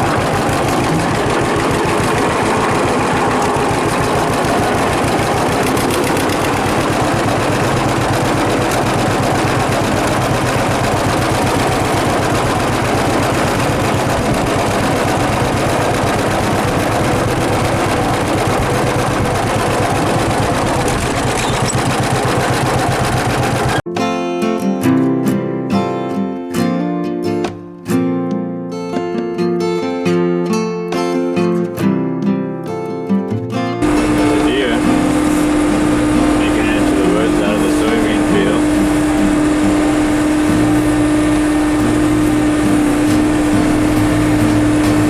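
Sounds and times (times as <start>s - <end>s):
acoustic guitar music: 0.0s - 22.4s, 33.5s - 45.0s
baler mechanical clatter: 0.0s - 23.8s, 33.8s - 45.0s
tractor engine running: 0.0s - 23.8s, 33.8s - 45.0s.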